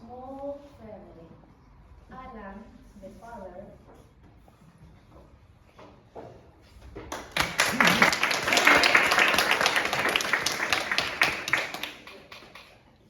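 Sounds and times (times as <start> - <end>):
audience clapping: 7.1 - 12.8.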